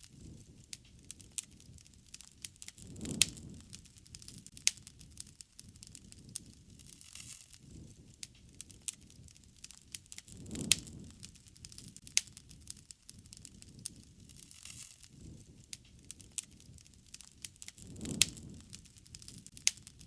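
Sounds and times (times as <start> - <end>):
low rumble of flames: 0.0 - 20.0
wood fire crackling: 0.0 - 20.0.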